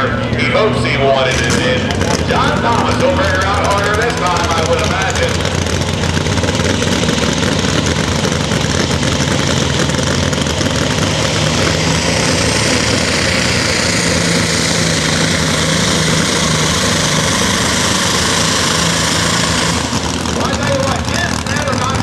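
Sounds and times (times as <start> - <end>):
diesel tractor engine under load: 0.0 - 22.0.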